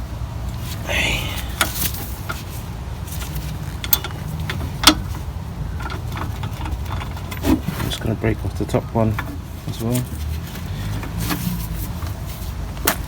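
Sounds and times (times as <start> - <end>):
socket clinking on bolt: 3.6 - 5.1.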